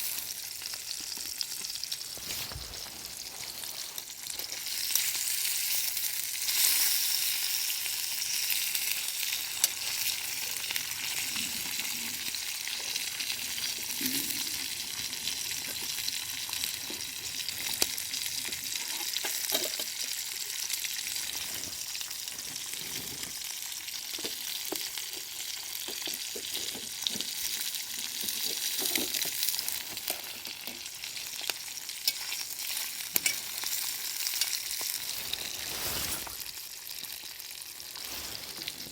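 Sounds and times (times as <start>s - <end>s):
food sizzling in a pan: 0.0s - 38.9s
stirring strokes: 34.9s - 36.4s, 37.9s - 38.9s.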